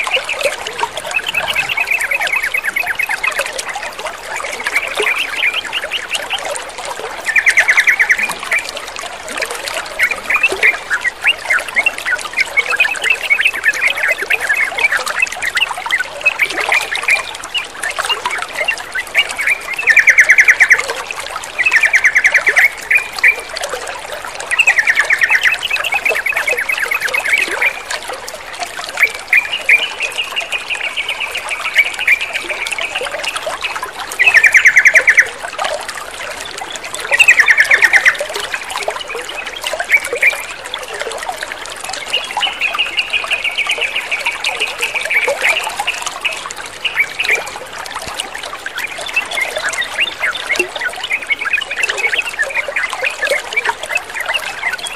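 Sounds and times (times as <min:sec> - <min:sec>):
running water trickling: 0:00.0 - 0:54.9
birds chattering and calling: 0:00.1 - 0:03.4.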